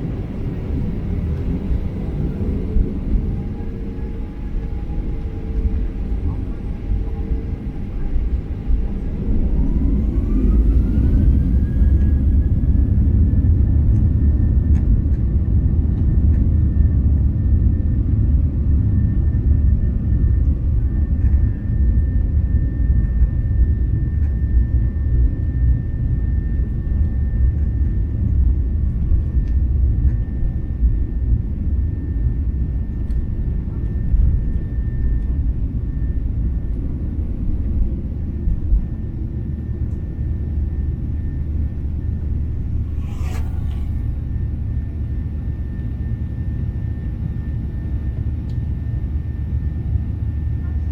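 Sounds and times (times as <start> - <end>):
jet engines spooling up: 0.0 - 13.4, 41.1 - 45.9
loud cabin rumble: 0.0 - 14.0, 39.8 - 46.3.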